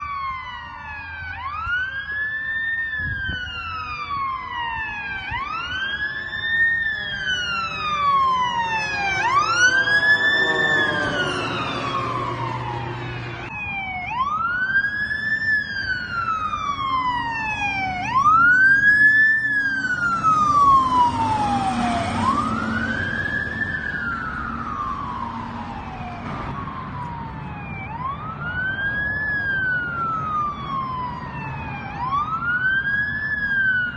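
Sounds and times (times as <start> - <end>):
emergency sirens wailing: 0.0 - 33.9
heavy vehicle engines rumbling: 0.0 - 33.9.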